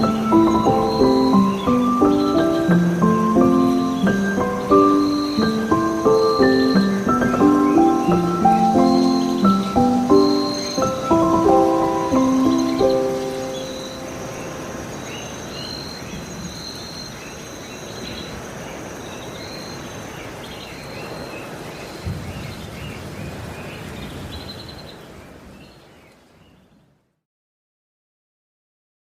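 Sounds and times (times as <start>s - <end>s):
steady hiss: 0.0s - 18.9s
bird chirps: 0.0s - 25.0s.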